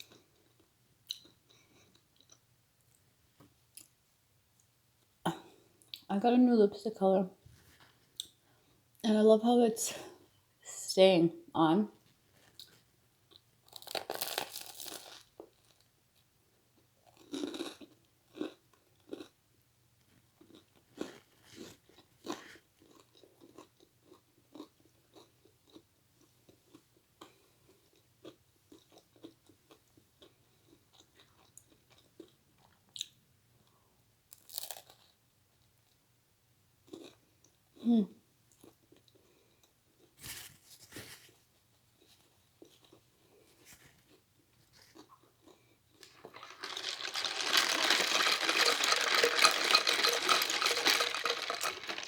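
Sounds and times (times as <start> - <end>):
crunchy bites: 13.7 - 15.3.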